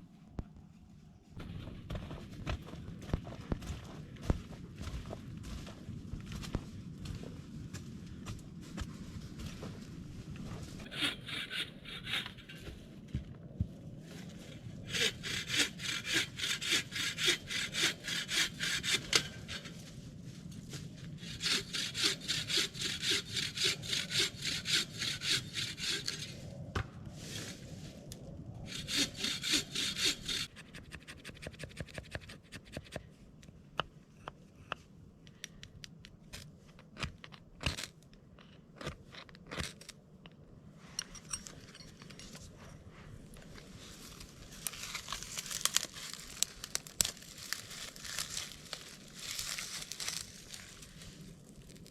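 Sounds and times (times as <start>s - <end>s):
hand saw cutting wood: 10.8s - 12.7s, 14.8s - 19.7s, 21.2s - 26.4s, 28.7s - 33.0s.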